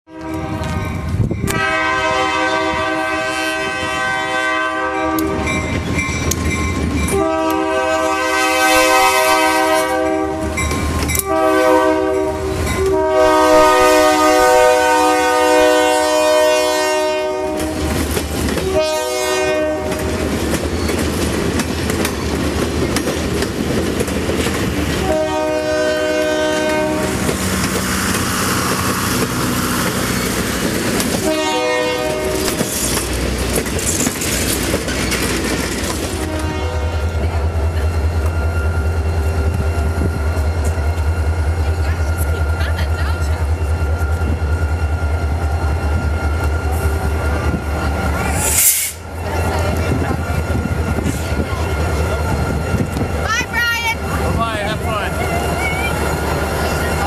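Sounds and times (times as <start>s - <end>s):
locomotive horn blasts: 0.1s - 5.6s, 7.1s - 18.0s, 18.6s - 20.2s, 25.0s - 27.3s, 31.1s - 32.7s, 36.2s - 37.3s
train wheels clicking on rails: 5.1s - 8.2s, 10.4s - 11.4s, 17.5s - 19.0s, 19.7s - 57.0s.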